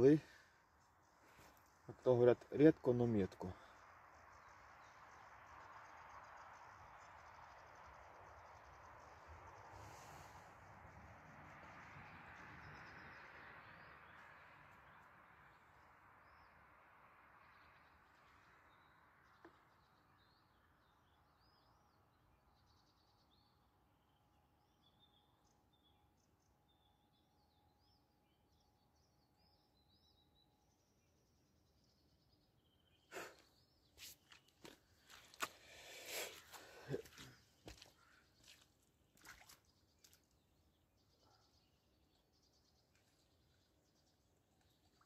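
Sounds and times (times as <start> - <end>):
birds chirping: 17.5 - 45.0.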